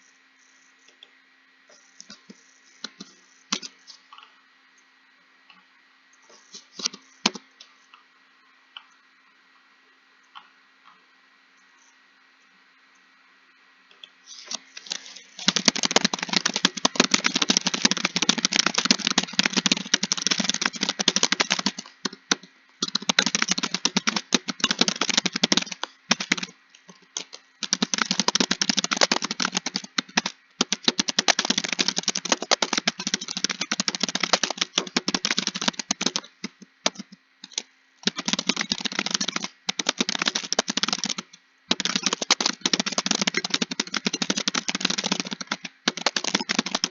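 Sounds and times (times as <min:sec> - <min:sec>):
computer keyboard typing: 0:14.5 - 0:46.9.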